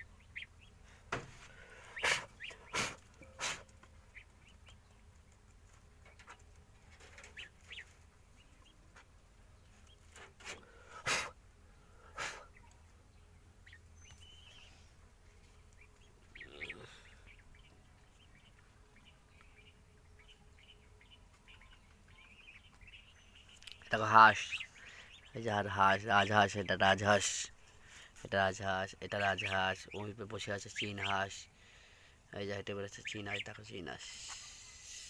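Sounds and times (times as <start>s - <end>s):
geese calling and honking: 0.0s - 4.8s, 7.0s - 8.8s, 13.6s - 19.1s, 19.7s - 32.0s, 32.8s - 35.0s.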